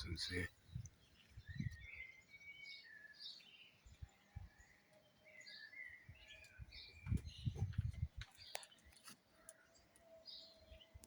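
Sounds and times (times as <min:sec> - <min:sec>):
birds chirping: 0:00.0 - 0:11.0
low thumps on microphone: 0:07.0 - 0:08.3.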